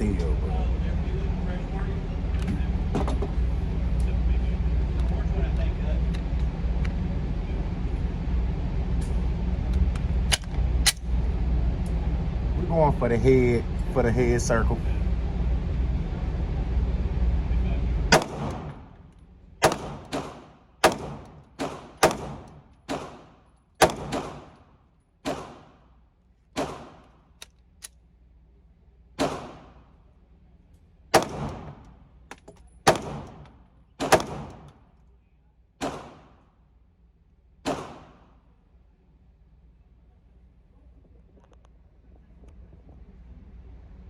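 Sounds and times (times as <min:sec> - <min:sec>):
low rumble: 0:00.0 - 0:22.9
pistol shots: 0:18.1 - 0:18.9, 0:19.6 - 0:25.8, 0:26.6 - 0:27.2, 0:29.2 - 0:29.9, 0:31.1 - 0:32.0, 0:32.8 - 0:34.8, 0:35.8 - 0:36.4, 0:37.6 - 0:38.4.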